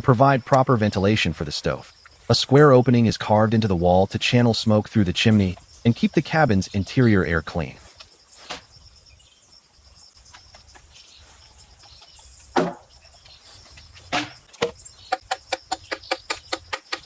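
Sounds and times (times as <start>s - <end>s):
insects whining: 0.0s - 17.0s
hammer tapping chisel: 15.1s - 17.0s.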